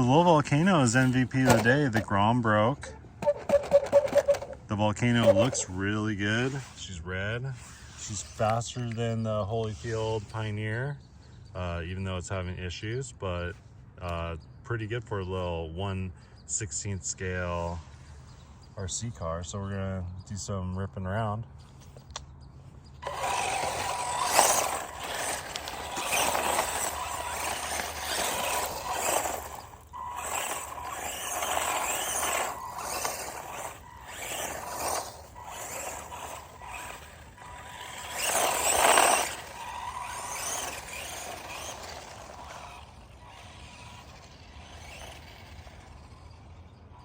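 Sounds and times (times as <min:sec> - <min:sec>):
rc truck motor whine: 0:00.0 - 0:02.0, 0:02.8 - 0:06.7, 0:22.8 - 0:47.0
tyre noise: 0:23.0 - 0:45.6.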